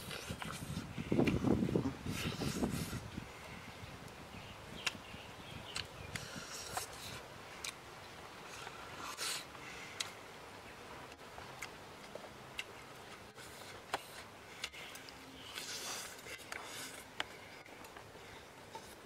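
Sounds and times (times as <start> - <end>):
crunchy chewing: 5.7 - 7.8, 11.1 - 19.0.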